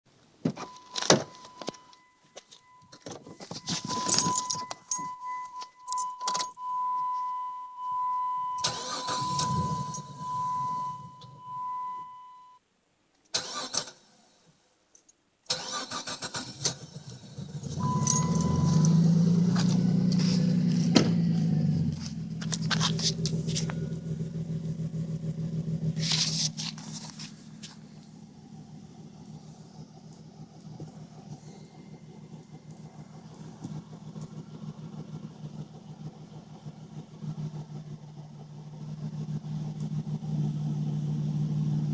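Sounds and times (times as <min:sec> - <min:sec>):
car engine cranking and idling: 0:00.2 - 0:12.4, 0:13.3 - 0:41.9
keys rattling: 0:00.8 - 0:06.6, 0:17.9 - 0:19.0
high electronic warning tone: 0:00.8 - 0:12.6, 0:17.8 - 0:19.0.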